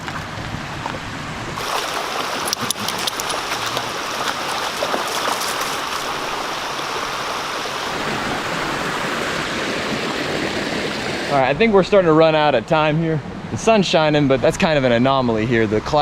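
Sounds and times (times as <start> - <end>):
stream water flowing over rock: 1.6 - 11.4.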